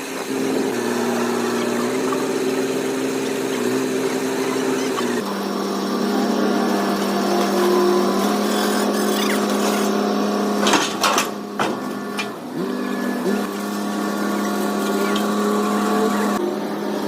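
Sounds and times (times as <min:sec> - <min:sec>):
excavator mechanical hum: 0:00.0 - 0:17.0.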